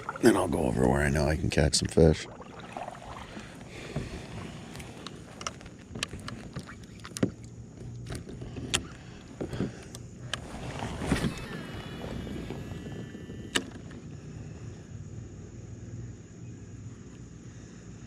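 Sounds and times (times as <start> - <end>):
low steady hum: 0.0 - 18.0
gear knocking against boat: 2.3 - 12.9.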